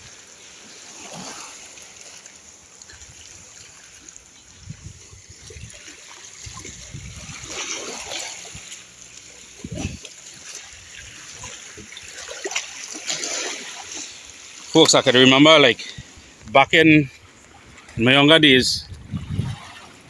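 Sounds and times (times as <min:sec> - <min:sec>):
small waves splashing: 0:00.0 - 0:20.0
wind buffeting microphone: 0:02.9 - 0:08.8, 0:09.5 - 0:12.2, 0:15.8 - 0:20.0.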